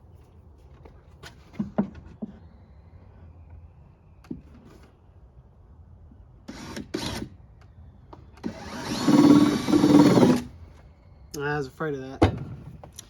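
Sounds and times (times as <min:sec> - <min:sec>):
power drill driving a screw: 0:06.5 - 0:07.3, 0:08.4 - 0:10.5.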